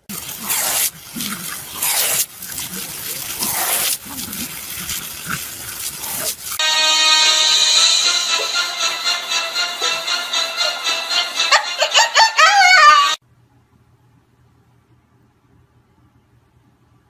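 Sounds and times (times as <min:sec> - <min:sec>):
hose nozzle spraying water: 0:00.0 - 0:06.6
music: 0:06.6 - 0:13.2.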